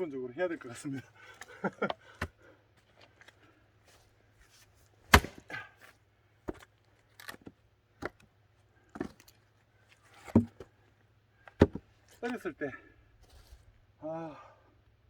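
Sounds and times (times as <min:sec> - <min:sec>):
axe splitting a log: 0:02.2 - 0:02.4, 0:05.0 - 0:05.7, 0:06.5 - 0:08.2, 0:08.9 - 0:09.3, 0:10.2 - 0:10.7, 0:11.5 - 0:11.9
light wooden knocks: 0:11.5 - 0:11.9.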